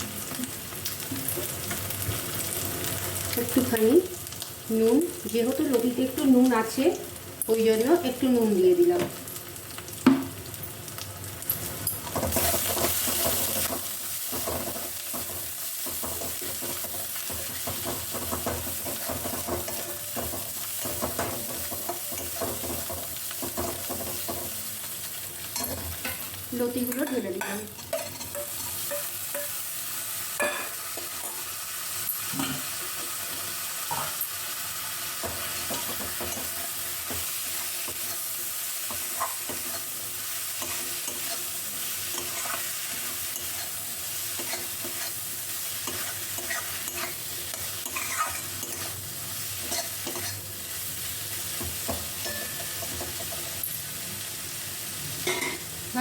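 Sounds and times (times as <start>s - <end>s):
food sizzling in hot oil: 0.0s - 56.0s
spatula scraping and knocking pan: 12.1s - 24.6s.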